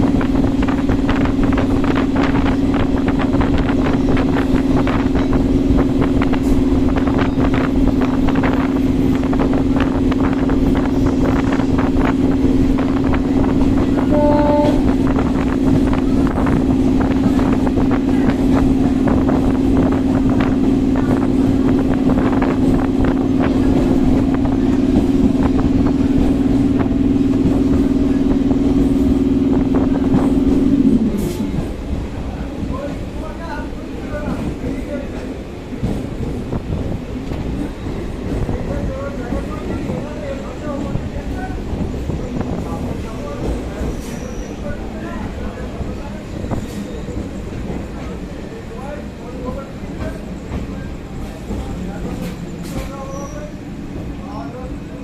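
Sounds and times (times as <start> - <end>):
train running at speed: 0.0 - 55.0
two-note tone: 14.1 - 14.9.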